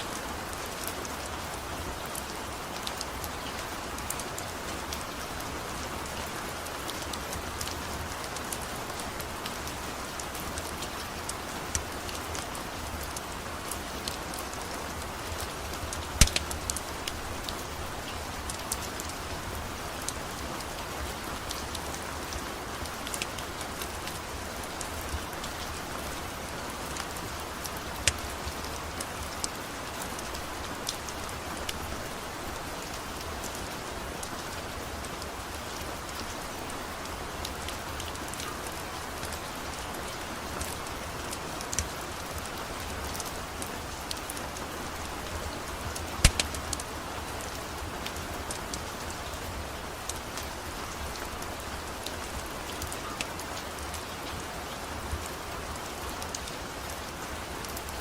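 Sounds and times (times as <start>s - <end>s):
steady rain falling: 0.0s - 58.0s
sharp ticks and pops: 15.9s - 16.8s, 45.9s - 46.9s.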